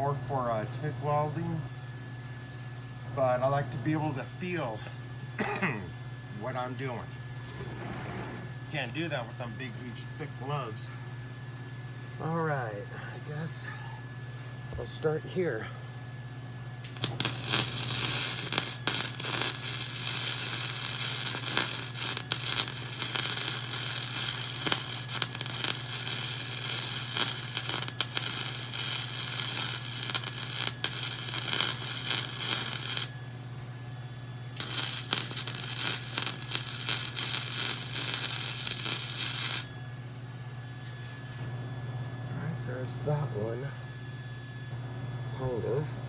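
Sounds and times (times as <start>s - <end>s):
steady low hum: 0.0s - 46.0s
welder arc crackling and spitting: 16.8s - 33.2s, 34.6s - 39.7s.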